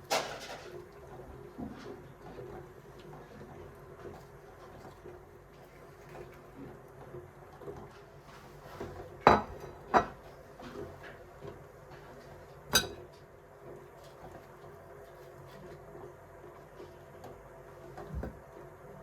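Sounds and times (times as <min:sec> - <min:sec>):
dishes knocking: 0:09.3 - 0:10.2
ringing dish clink: 0:12.7 - 0:13.0
small utensil clatter: 0:12.7 - 0:13.1.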